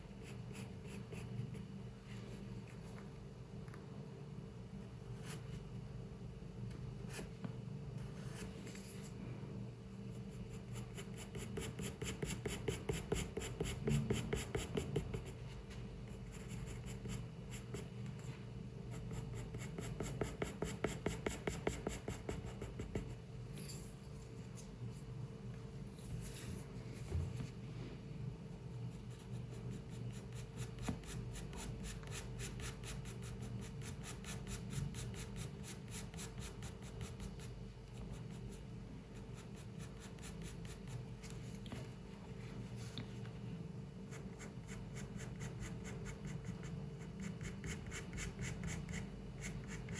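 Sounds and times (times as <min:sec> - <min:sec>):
low room hum: 0:00.0 - 0:49.9
pencil scratching on paper: 0:00.1 - 0:01.7, 0:08.0 - 0:09.2, 0:10.1 - 0:18.3, 0:18.9 - 0:23.2, 0:28.5 - 0:41.0, 0:44.1 - 0:49.9.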